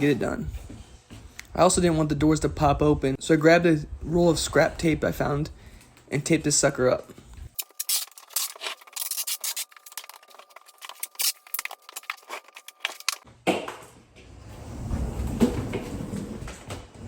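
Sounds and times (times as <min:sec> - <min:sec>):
adhesive tape pulled off roll: 0:07.6 - 0:13.2.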